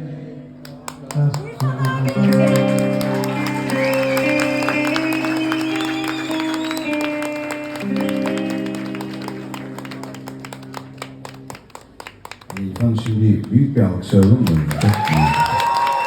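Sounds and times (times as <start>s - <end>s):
audience clapping: 0.6s - 16.0s
live band sustained chords: 2.1s - 11.8s.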